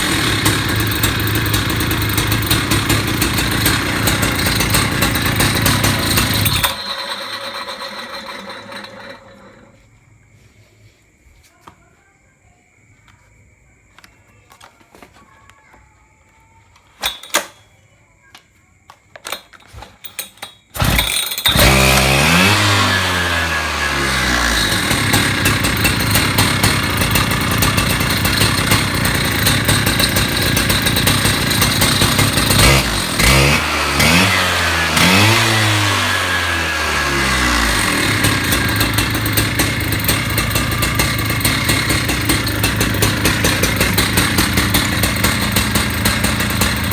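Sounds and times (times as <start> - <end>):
cut-off saw engine revving: 0.0 - 9.8, 20.8 - 46.9.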